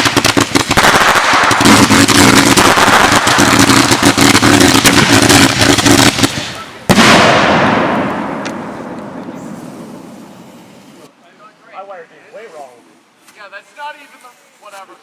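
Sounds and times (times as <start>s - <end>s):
loud firework bang: 0.0s - 10.6s
fireworks crackling pops: 0.0s - 11.1s.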